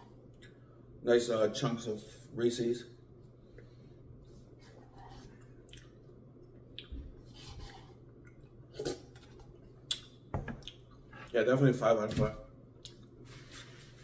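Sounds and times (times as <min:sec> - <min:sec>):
low steady hum: 0:00.0 - 0:14.0
person chewing wet mouth sounds: 0:05.4 - 0:07.3.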